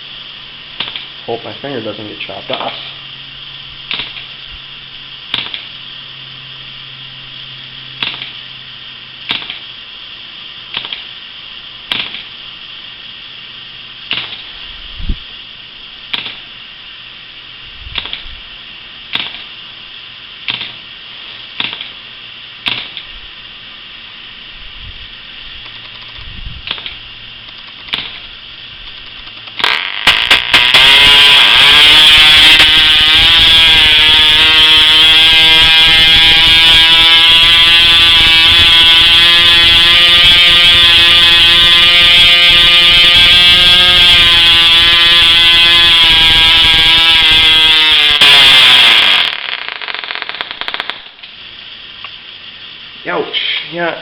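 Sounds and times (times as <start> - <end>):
model airplane engine running: 29.3 - 49.3.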